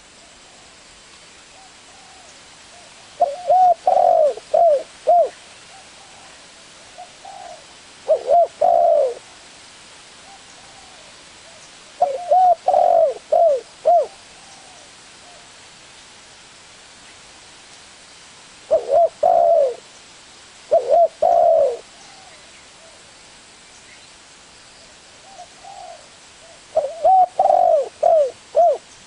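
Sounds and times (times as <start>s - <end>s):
dove cooing: 1.5s - 9.4s, 10.2s - 15.6s, 18.7s - 19.9s, 20.7s - 23.1s, 25.2s - 28.9s.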